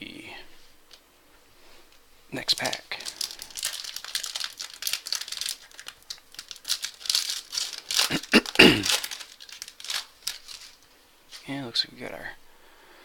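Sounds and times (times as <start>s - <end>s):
wrapper crinkling and tearing: 2.4s - 11.0s.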